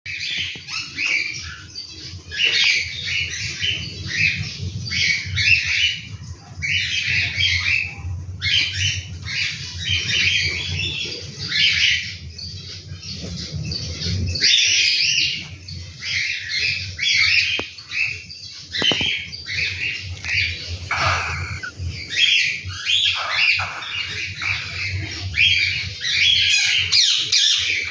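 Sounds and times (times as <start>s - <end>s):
cockatiel chicks calling: 0.1s - 27.9s
steady low hum: 18.6s - 26.2s.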